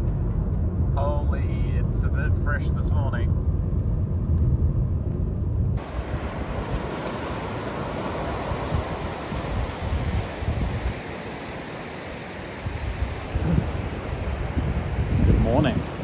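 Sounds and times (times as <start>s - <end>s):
wind buffeting microphone: 0.0s - 16.0s
sea waves washing on shore: 5.8s - 16.0s.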